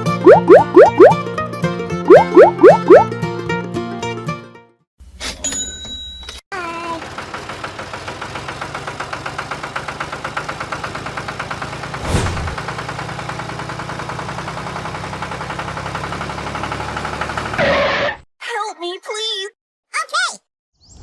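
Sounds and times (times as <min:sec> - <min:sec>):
tractor engine chugging: 0:06.7 - 0:12.0, 0:12.6 - 0:17.6
whoosh: 0:12.0 - 0:12.6.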